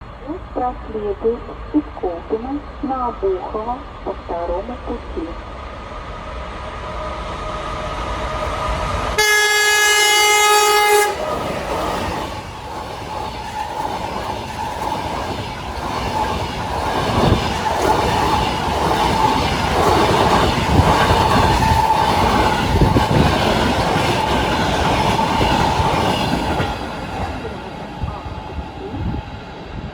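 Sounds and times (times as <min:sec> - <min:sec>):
train passing rumble: 0:00.0 - 0:29.9
locomotive horn blast: 0:09.2 - 0:11.4.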